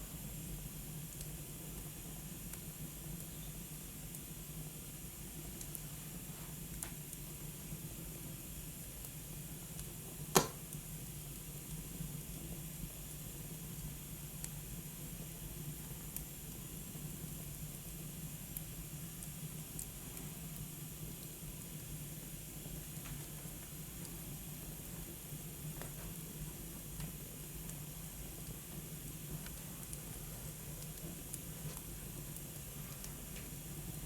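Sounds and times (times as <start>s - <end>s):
wood fire hissing: 0.0s - 34.0s
fire crackling: 0.1s - 34.0s
loud sharp pop: 10.3s - 10.6s.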